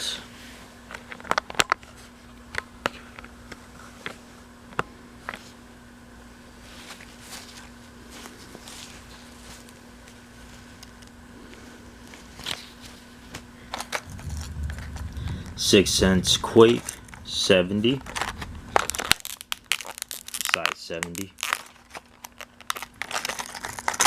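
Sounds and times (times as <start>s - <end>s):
faint hum: 0.0s - 24.0s
packaging clicks and rustling: 17.9s - 24.0s.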